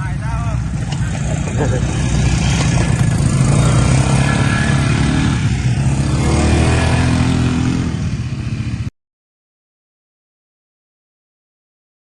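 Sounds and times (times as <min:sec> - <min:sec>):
vehicle engine running: 0:00.0 - 0:08.9.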